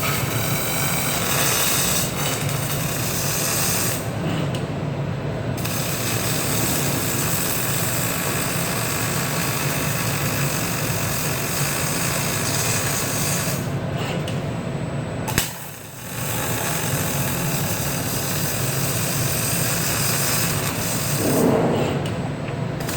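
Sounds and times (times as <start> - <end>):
welding arc hissing: 0.0 - 4.1, 5.6 - 13.7, 15.3 - 21.5.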